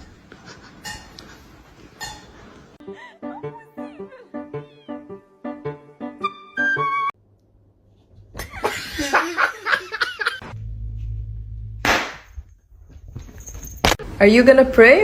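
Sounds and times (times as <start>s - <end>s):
person laughing: 2.8s - 5.0s, 8.4s - 10.4s
low hum: 10.4s - 13.6s.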